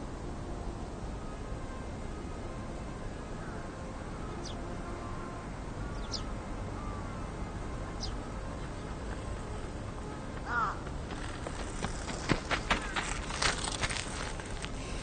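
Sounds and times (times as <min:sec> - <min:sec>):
low background noise: 0:00.0 - 0:15.0
faint bird calls: 0:10.4 - 0:11.3, 0:12.5 - 0:13.5.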